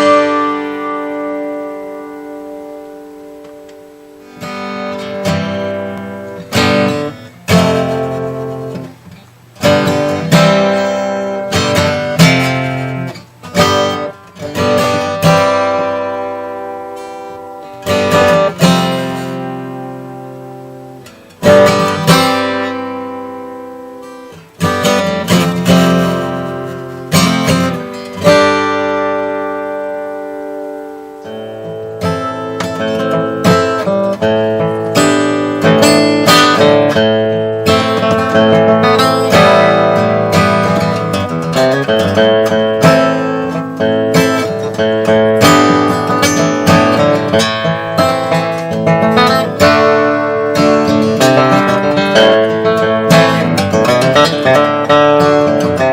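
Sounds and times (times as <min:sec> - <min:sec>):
acoustic guitar strummed chords: 0:00.0 - 0:55.9.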